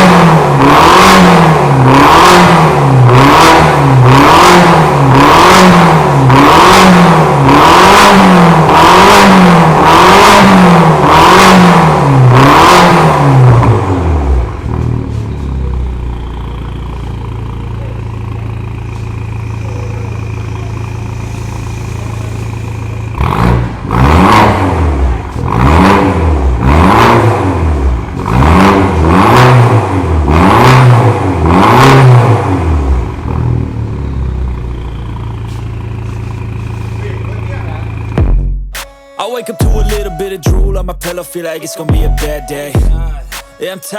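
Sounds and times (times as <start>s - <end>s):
car engine revving in blips: 0.0s - 38.9s
car engine idling: 13.1s - 30.3s, 32.6s - 38.7s.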